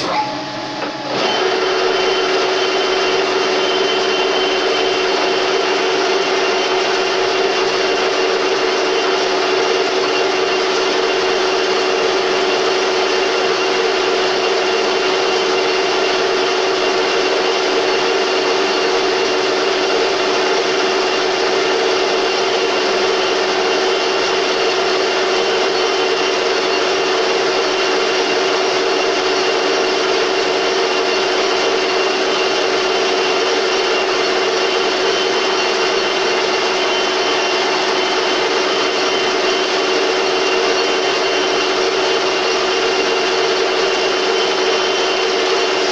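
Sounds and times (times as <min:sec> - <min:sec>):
high whine: 0:00.0 - 0:45.9
metal lathe humming: 0:00.0 - 0:45.9.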